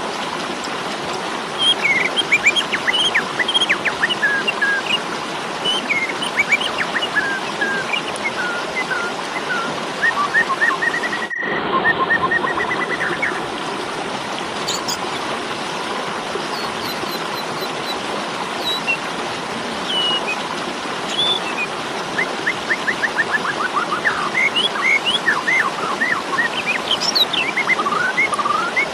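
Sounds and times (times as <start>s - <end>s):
starling chirping and trilling: 5.7s - 8.1s, 14.7s - 15.0s, 16.5s - 18.0s, 18.6s - 19.0s, 19.9s - 20.4s, 21.1s - 21.6s, 24.1s - 27.7s.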